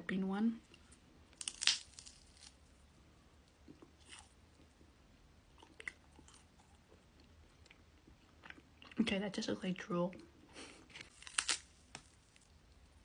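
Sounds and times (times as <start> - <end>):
bite crunching into crisp wafer: 1.3 - 2.7, 11.0 - 12.5
chewing crunches: 1.4 - 2.6, 3.6 - 4.8, 5.5 - 9.0, 11.0 - 12.5.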